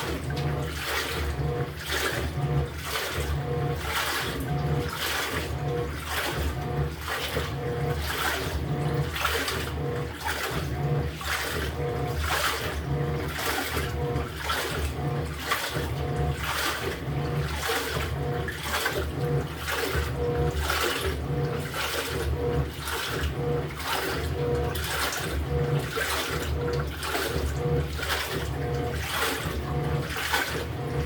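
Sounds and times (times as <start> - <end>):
washer churning water: 0.0 - 31.0
washer motor hum: 0.0 - 31.0.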